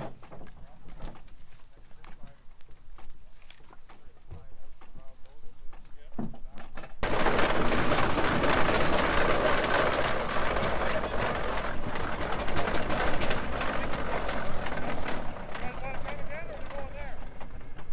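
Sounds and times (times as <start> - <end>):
steam traction engine running: 7.0 - 17.9.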